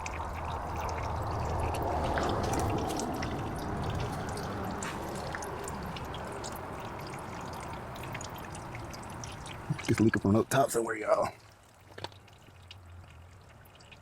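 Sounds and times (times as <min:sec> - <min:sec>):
oil pouring into pan: 0:00.0 - 0:10.0
fine drip ticks: 0:00.0 - 0:14.0.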